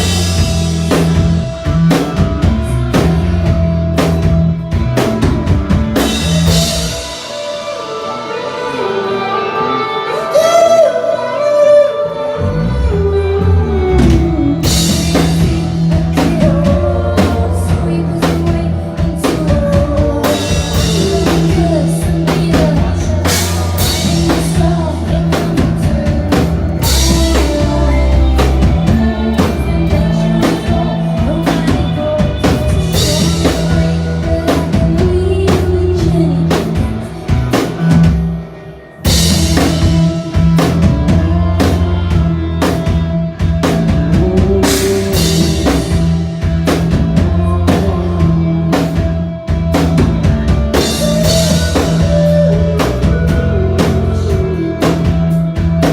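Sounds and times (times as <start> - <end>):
rock band playing: 0.0 - 55.9
person singing: 6.0 - 55.9.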